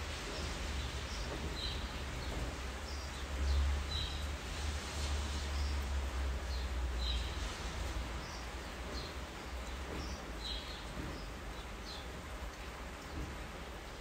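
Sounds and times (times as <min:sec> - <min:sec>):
steady rain hiss: 0:00.0 - 0:14.0.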